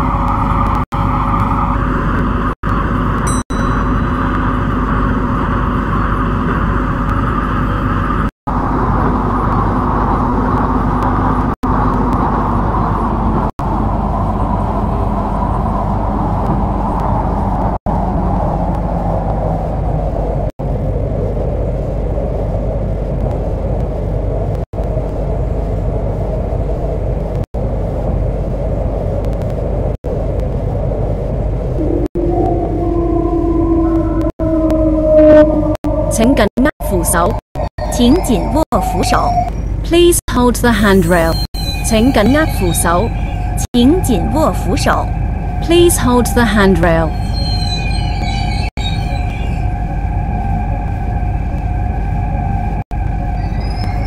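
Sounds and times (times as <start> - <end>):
electric train motor whine: 31.6 - 36.2.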